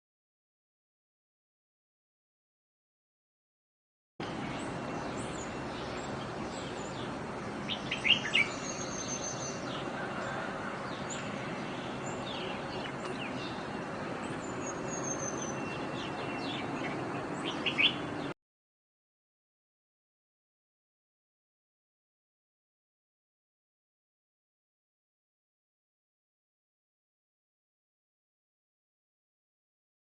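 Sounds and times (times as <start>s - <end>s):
songbirds chirping: 4.2s - 18.4s.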